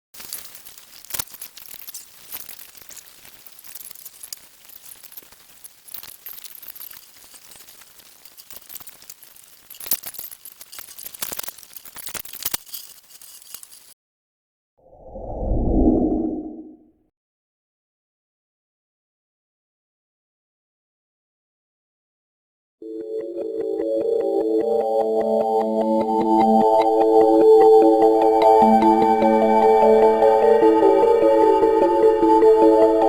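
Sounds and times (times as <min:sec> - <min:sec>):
small hard objects clicking: 0:00.2 - 0:14.0.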